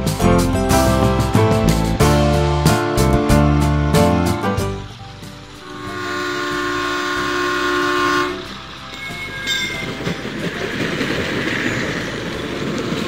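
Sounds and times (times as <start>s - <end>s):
toy train rattling clatter: 4.7s - 13.0s
electronic horn sound effect: 5.6s - 8.6s.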